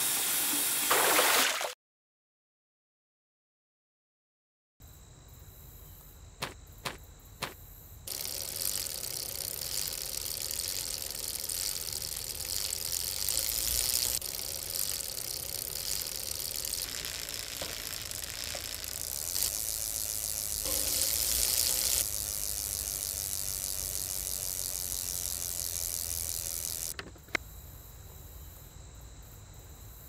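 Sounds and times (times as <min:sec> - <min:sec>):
high-pitched outdoor hiss: 0:04.8 - 0:30.0.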